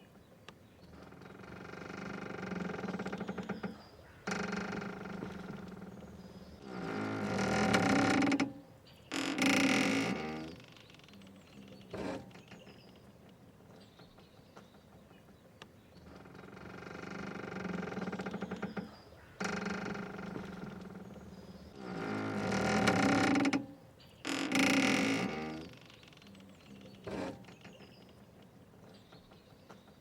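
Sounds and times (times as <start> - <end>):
mooring ropes creaking: 0.9 - 12.8, 16.1 - 28.9
faint clicks: 9.3 - 21.7.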